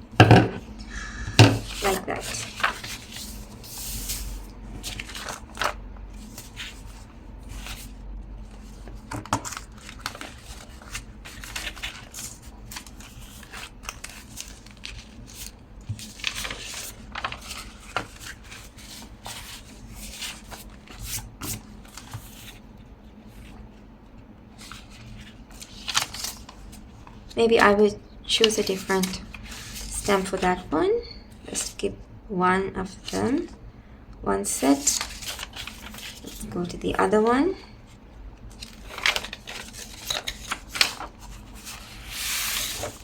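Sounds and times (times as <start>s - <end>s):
paper rustling and sliding: 1.0s - 22.7s, 24.6s - 27.2s, 28.4s - 30.4s, 34.8s - 36.5s, 38.5s - 43.0s.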